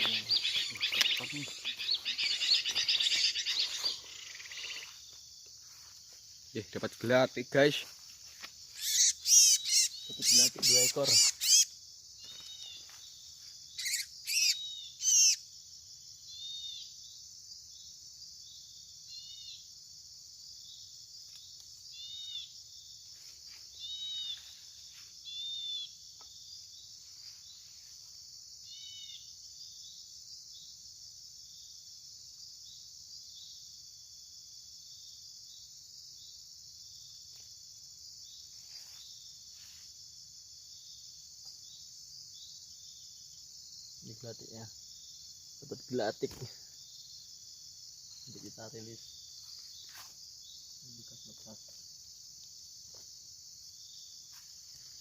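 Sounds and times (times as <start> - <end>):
songbird chirps: 0.0 - 19.7, 20.5 - 30.9, 34.8 - 55.0
high insect drone: 0.0 - 55.0.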